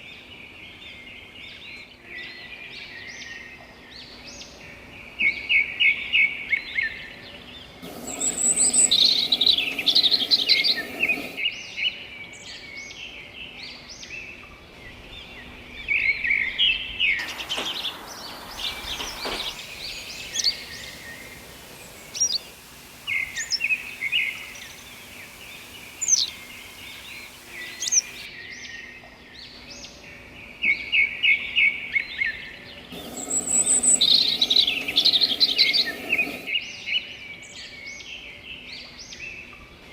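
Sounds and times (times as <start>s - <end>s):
songbirds chirping and singing: 17.2s - 28.3s.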